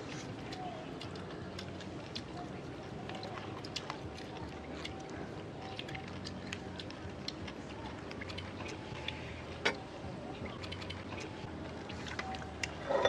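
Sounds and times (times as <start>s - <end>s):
chewing clicks: 0.4s - 9.2s.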